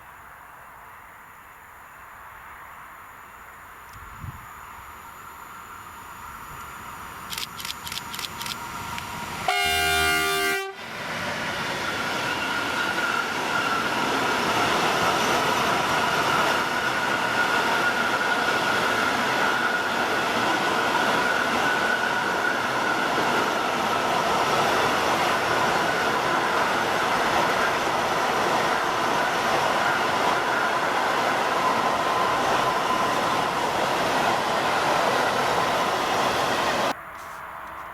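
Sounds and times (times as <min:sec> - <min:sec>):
train passing with rumble: 0:00.0 - 0:37.9
quick clicks: 0:07.3 - 0:09.1
train horn blast: 0:09.4 - 0:11.0.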